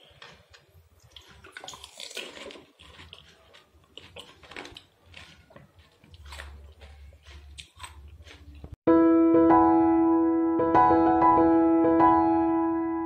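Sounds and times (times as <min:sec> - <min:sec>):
crunching crisp shell: 0:00.0 - 0:08.8.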